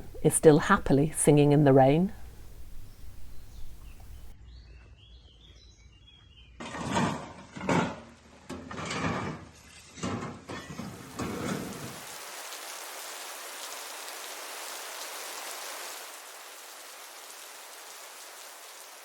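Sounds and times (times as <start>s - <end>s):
steady rain falling: 0.0s - 4.4s, 10.8s - 19.0s.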